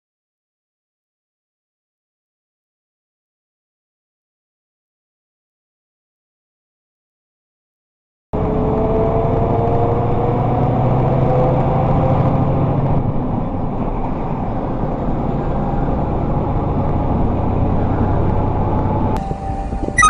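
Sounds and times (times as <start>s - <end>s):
vehicle engine and road noise: 8.4s - 20.0s.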